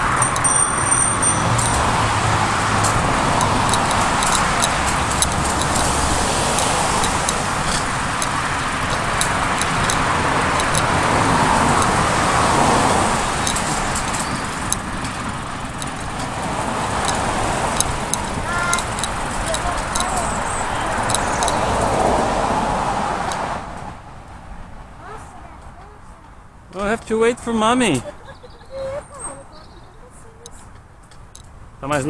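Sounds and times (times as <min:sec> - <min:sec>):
bicycle clicks and rattles: 0:00.0 - 0:02.0, 0:02.7 - 0:12.2, 0:12.8 - 0:22.2
wind and road noise: 0:00.0 - 0:32.0.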